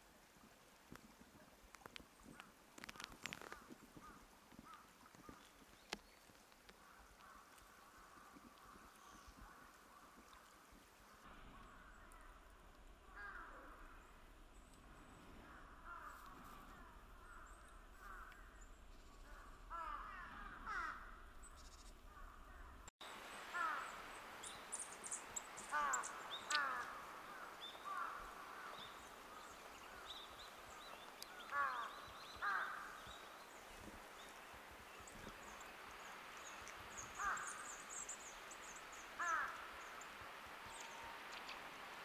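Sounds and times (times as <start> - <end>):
birds downward-slurred calls: 25.6 - 28.7.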